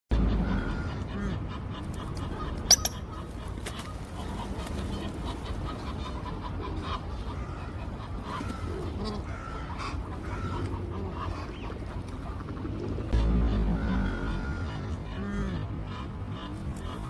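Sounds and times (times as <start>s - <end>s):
low background rumble: 0.1s - 17.0s
waterbirds calling: 0.2s - 17.0s
sharp high-pitched bird call: 2.7s - 3.1s.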